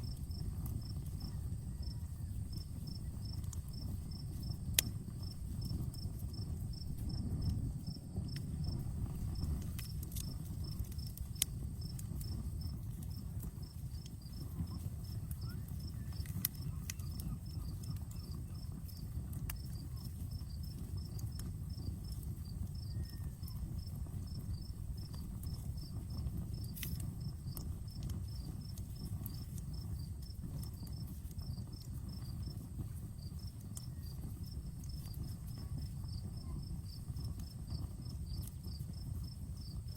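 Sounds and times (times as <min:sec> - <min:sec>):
cricket chirping: 0:00.0 - 0:32.6, 0:33.2 - 0:39.9
campfire crackling and popping: 0:00.0 - 0:39.9
low steady rumble: 0:00.0 - 0:39.9.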